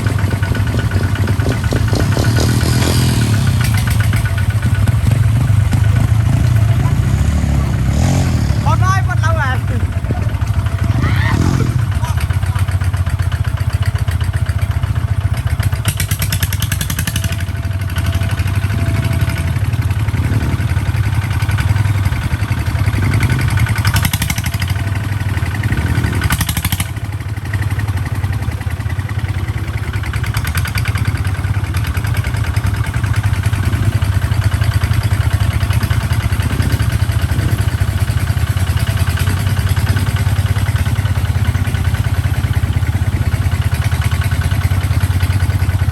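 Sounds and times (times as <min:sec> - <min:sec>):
bursts of clatter: 0:00.0 - 0:06.9
tractor diesel engine running: 0:00.0 - 0:45.9.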